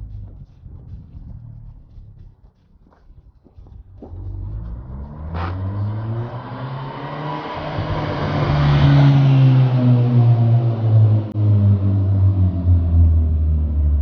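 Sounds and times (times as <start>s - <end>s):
car engine pulling under load: 4.0s - 14.0s.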